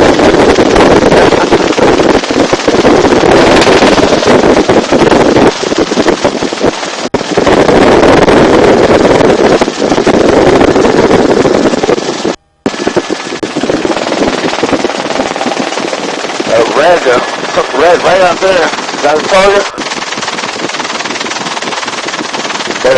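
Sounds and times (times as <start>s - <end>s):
machine gun firing bursts: 0.0s - 7.3s, 12.8s - 22.9s
helicopter rotor noise: 0.0s - 22.9s
wind: 0.0s - 22.9s.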